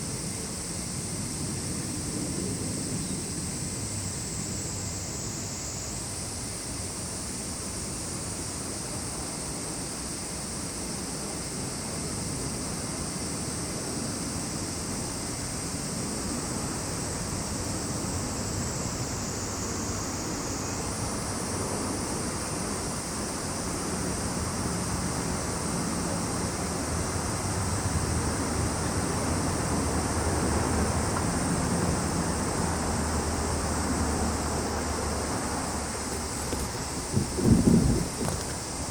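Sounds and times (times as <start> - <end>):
high-pitched insect chorus: 0.0 - 38.9
low rushing rumble: 36.2 - 38.6.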